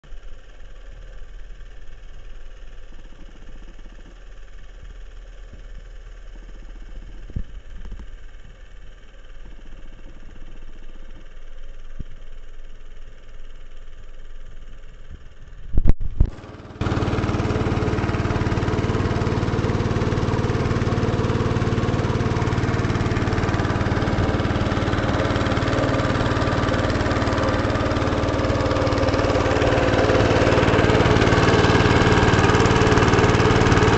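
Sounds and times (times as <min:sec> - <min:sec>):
engine running: 0:14.4 - 0:33.9.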